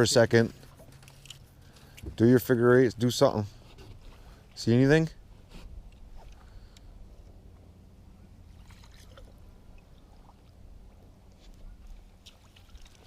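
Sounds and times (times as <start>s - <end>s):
low steady hum: 0.0s - 13.0s
water lapping at boat hull: 3.5s - 4.6s, 5.2s - 13.0s.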